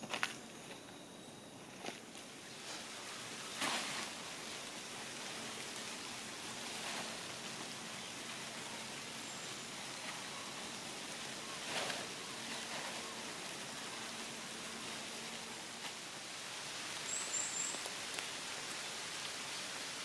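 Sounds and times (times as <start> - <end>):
steady outdoor hiss: 0.0 - 20.0
short rustle: 1.7 - 4.6, 11.6 - 16.0.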